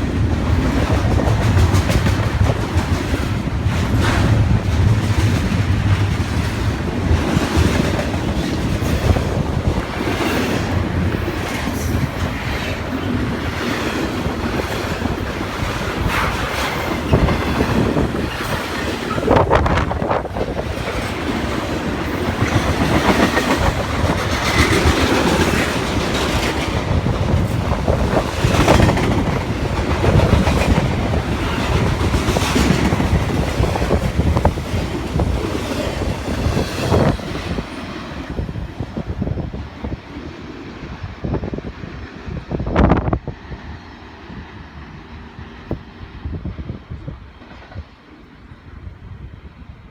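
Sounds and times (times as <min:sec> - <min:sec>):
freight train wheels clattering: 0:00.0 - 0:39.1.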